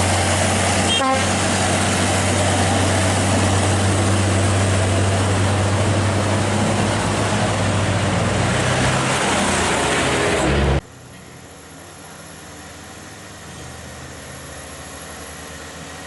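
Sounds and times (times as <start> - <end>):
truck diesel engine running: 0.0 - 16.0.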